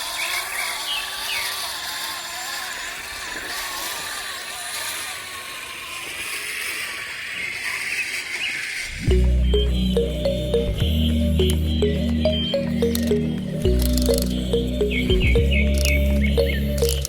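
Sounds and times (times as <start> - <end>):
toy electric motor whining: 0.0 - 9.0.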